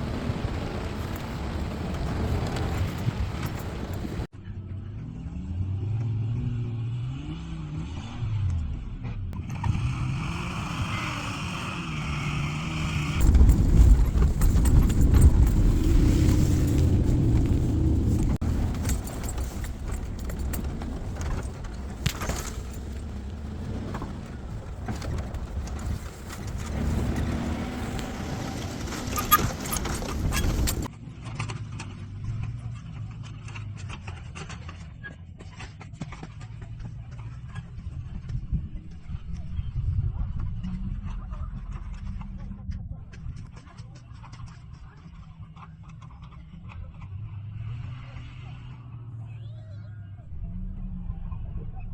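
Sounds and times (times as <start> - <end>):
car engine revving: 0.0 - 4.3, 9.4 - 30.9.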